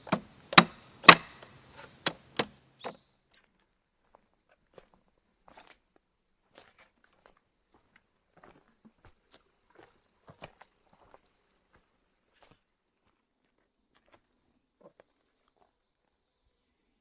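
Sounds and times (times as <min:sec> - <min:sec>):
bamboo clicking and scraping: 0:00.0 - 0:03.0.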